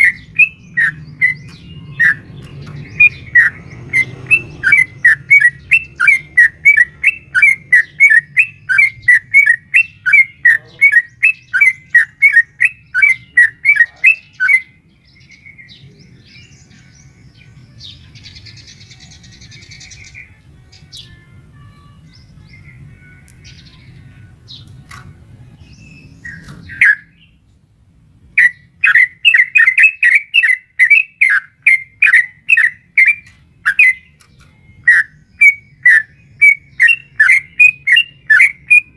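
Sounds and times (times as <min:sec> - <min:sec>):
bird rapid repeated chirping: 0:00.0 - 0:17.5, 0:25.6 - 0:27.4, 0:28.3 - 0:38.9.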